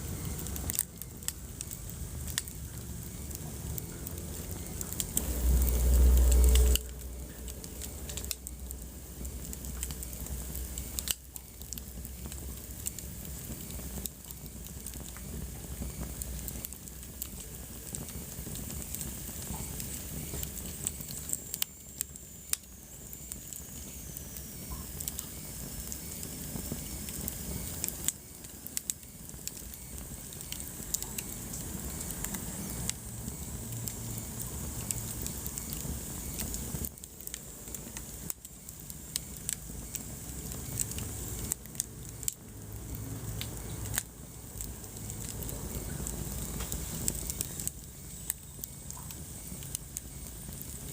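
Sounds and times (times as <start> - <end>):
fire crackling and popping: 0.0 - 50.9
loud low rumble: 3.7 - 9.8.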